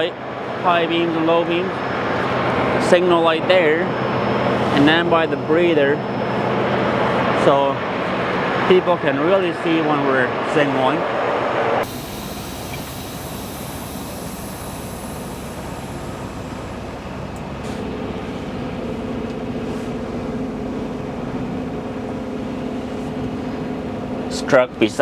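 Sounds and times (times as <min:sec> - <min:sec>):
diesel truck engine running: 0:11.6 - 0:24.2
steady low drone: 0:11.8 - 0:22.4.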